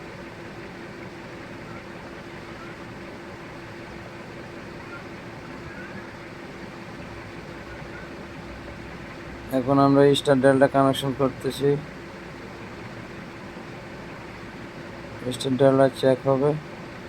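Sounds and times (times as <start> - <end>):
faint constant tone: 0.0 - 17.0
fan-like hum and hiss: 0.0 - 17.0.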